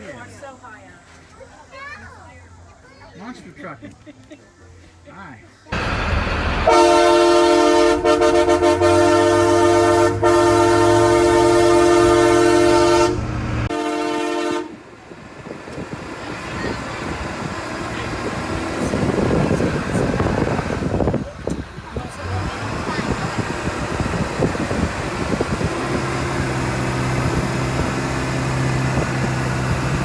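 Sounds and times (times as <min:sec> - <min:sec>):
vehicle running noise: 0:05.7 - 0:30.0
truck air horn blast: 0:05.8 - 0:14.8.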